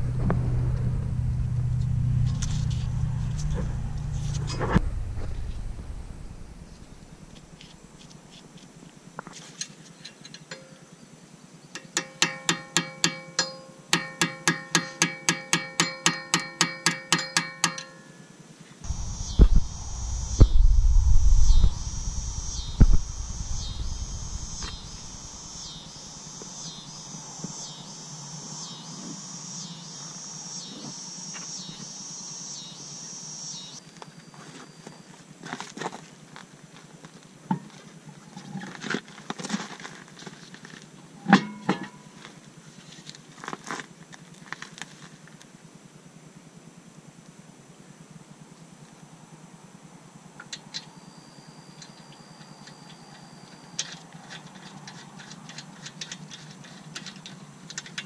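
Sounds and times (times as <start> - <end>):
thumps: 0.0 - 7.5
low rumble: 0.0 - 8.1, 18.9 - 30.3
high pulsing insect drone: 0.0 - 8.6, 18.3 - 35.1, 49.0 - 58.0.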